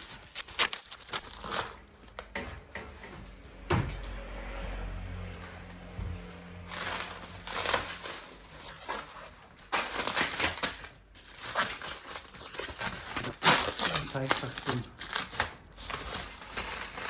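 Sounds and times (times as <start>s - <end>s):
packing material crinkling: 0.0s - 2.3s, 5.7s - 17.0s.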